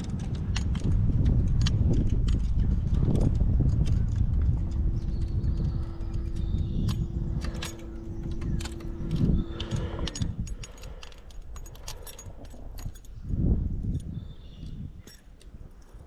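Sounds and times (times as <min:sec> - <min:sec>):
steady hum: 0:00.8 - 0:14.0
metal fishing tackle rattling: 0:05.9 - 0:14.1.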